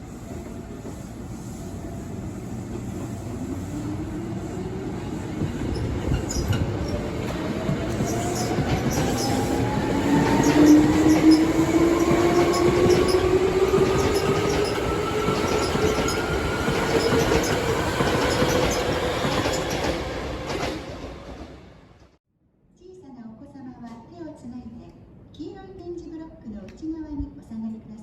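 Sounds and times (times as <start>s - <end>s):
train running noise: 0.0s - 22.1s.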